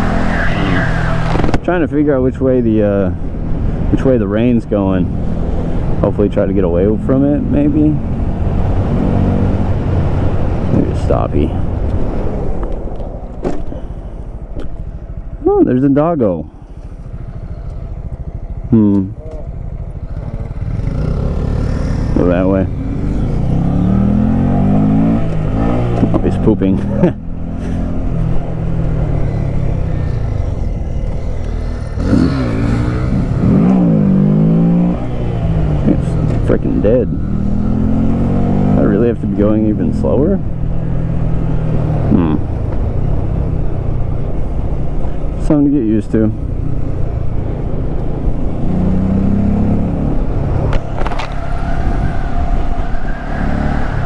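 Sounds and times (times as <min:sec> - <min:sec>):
road and wind noise: 0:00.0 - 0:54.0
mini bike engine revving: 0:16.5 - 0:39.0.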